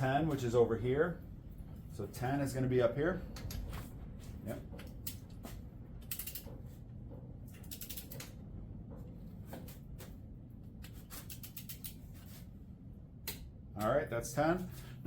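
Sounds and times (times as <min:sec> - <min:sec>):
torque wrench ratchet clicks: 0:06.0 - 0:06.5, 0:07.6 - 0:08.3, 0:11.2 - 0:12.0.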